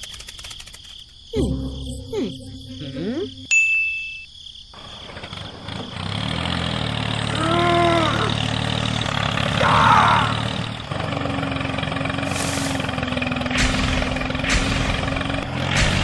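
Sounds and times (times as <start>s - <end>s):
short pitched rising sound: 1.4s - 3.5s
engine running: 4.8s - 16.0s.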